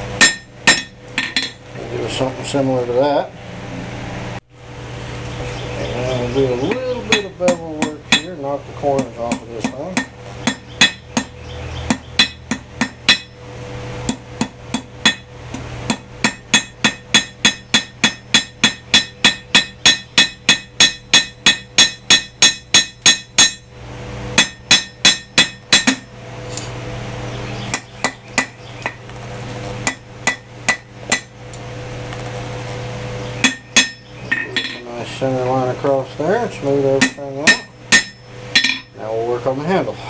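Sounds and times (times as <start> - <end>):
steady low hum: 0.0 - 40.0
hammer striking steel on anvil: 0.2 - 1.6, 6.6 - 11.3, 11.9 - 13.4, 14.1 - 23.7, 24.4 - 26.7, 27.7 - 29.0, 29.8 - 31.3, 33.4 - 34.9, 37.0 - 39.0.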